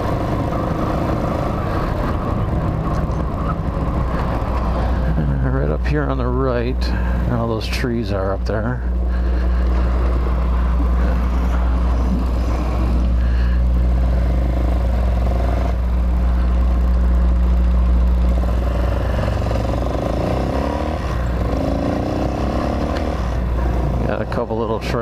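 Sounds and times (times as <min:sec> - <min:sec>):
motorcycle engine running: 0:00.0 - 0:25.0
person talking: 0:24.0 - 0:25.0.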